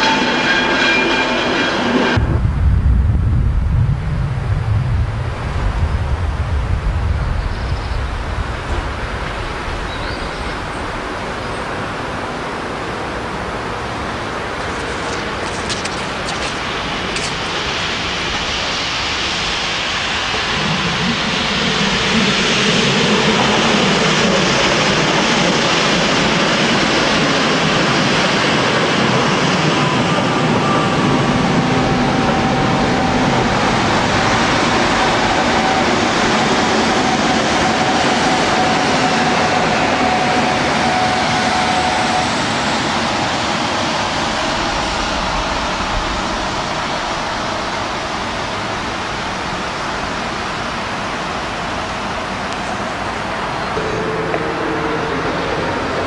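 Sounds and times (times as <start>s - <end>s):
train wheels rumbling on rail: 0.0s - 56.0s
faint steady whine: 39.9s - 56.0s.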